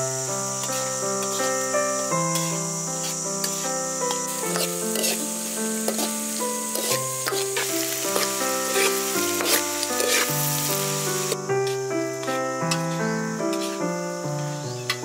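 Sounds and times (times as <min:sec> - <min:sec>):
food sizzling in a wok: 0:00.0 - 0:15.0
soft piano music: 0:00.0 - 0:15.0
metal spatula scraping pan: 0:02.3 - 0:10.8.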